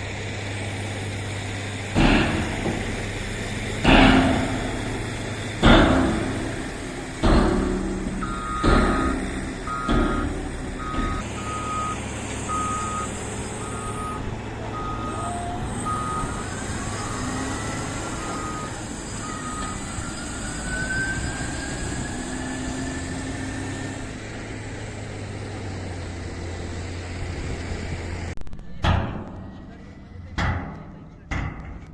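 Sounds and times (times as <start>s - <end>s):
diesel engine running low: 0.0s - 31.9s
knocks: 3.8s - 11.2s, 30.4s - 31.9s
reversing alarm beeping: 8.2s - 22.6s.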